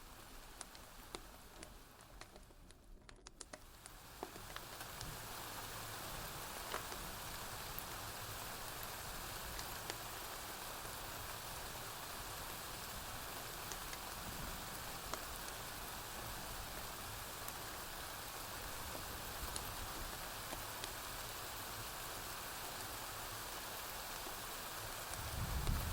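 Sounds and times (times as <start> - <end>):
steady rainfall: 0.0 - 2.6, 3.6 - 25.9
sharp crackles and clicks: 0.3 - 5.2, 6.6 - 7.9, 19.3 - 21.0, 24.2 - 25.9.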